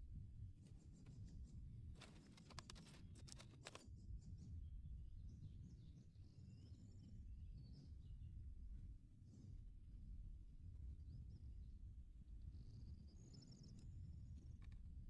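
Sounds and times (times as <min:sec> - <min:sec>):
crackling clicks: 0:02.0 - 0:03.8.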